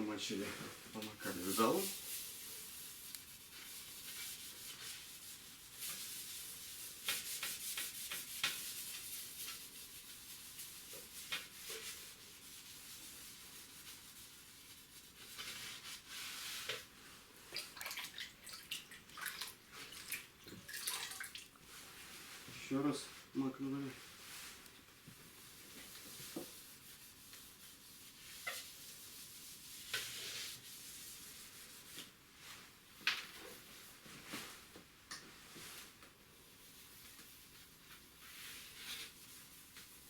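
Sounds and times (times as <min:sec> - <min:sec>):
sponge scrubbing glass: 0:01.2 - 0:16.9, 0:25.5 - 0:32.0.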